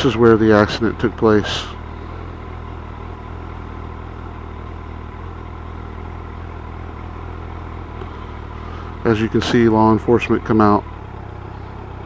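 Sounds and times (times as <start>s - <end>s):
motorcycle engine running steadily: 0.0s - 12.0s.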